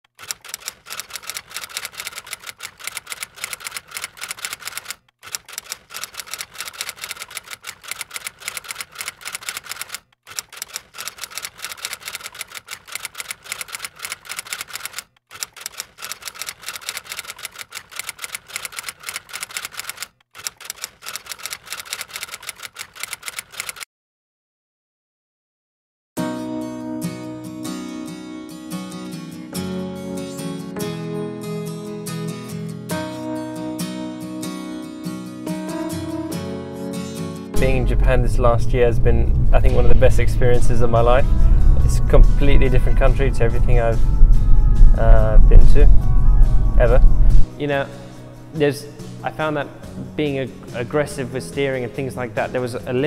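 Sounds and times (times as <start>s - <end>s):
typewriter keys clacking: 0.1s - 23.9s.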